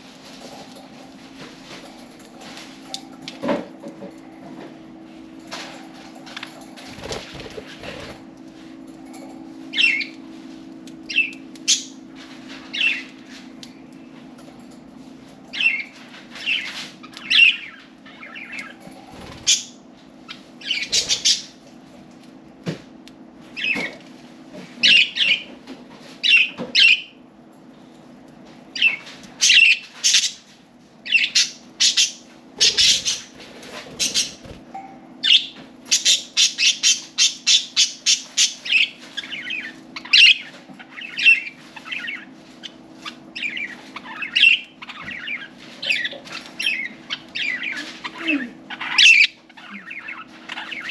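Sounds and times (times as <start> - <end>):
budgerigars chirping: 19.4 - 21.6, 31.1 - 33.3, 34.0 - 34.4, 35.2 - 47.9, 48.7 - 50.9.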